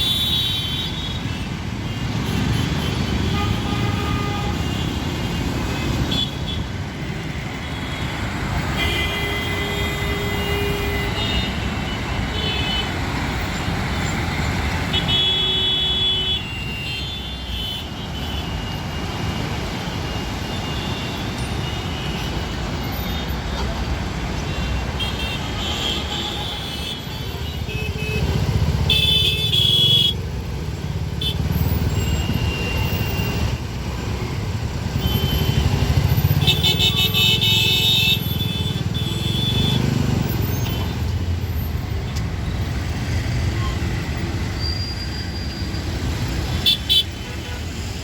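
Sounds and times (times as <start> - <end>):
traffic engines rumbling: 0.0 - 48.0
car horns honking: 23.6 - 30.2, 35.0 - 41.0, 46.4 - 47.9.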